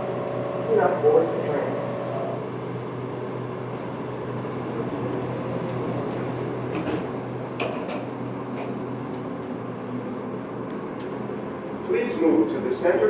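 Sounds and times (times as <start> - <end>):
train car running hum: 0.0 - 13.0.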